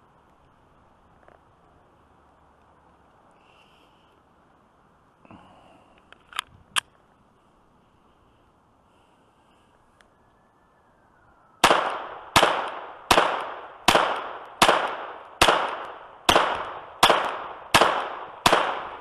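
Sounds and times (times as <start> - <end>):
pistol shots with echo: 11.6 - 19.0.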